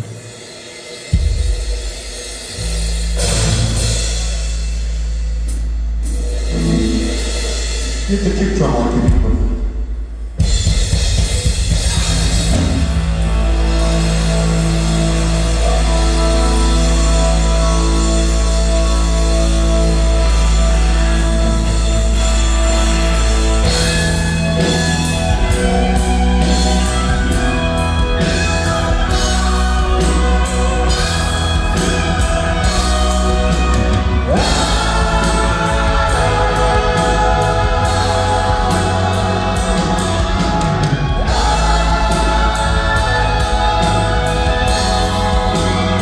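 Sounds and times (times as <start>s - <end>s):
drums: 0.0s - 46.0s
live band playing: 0.0s - 46.0s
person singing: 13.8s - 46.0s.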